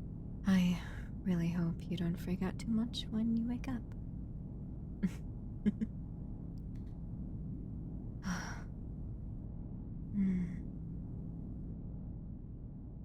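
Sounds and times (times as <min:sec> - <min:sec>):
low background hum: 0:00.0 - 0:13.0
woman sighing: 0:10.2 - 0:10.6.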